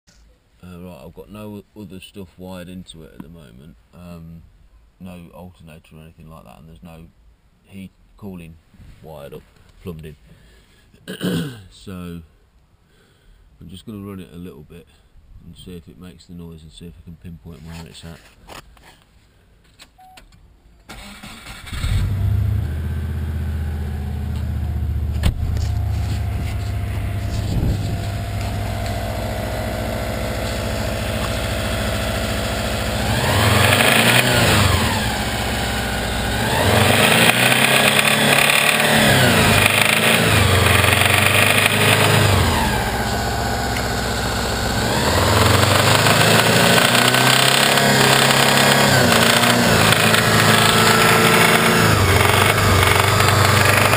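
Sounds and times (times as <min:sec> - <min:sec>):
car engine starting and revving: 0:20.9 - 0:53.9
engine internal noise: 0:21.0 - 0:53.9.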